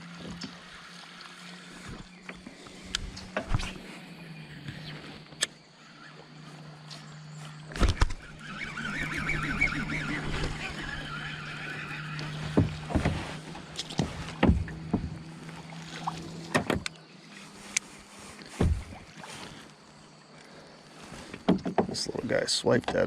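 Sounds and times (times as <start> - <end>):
water or gear noise: 0.0 - 23.0
knocks against kayak hull: 13.9 - 15.2, 18.6 - 19.0, 21.4 - 22.0.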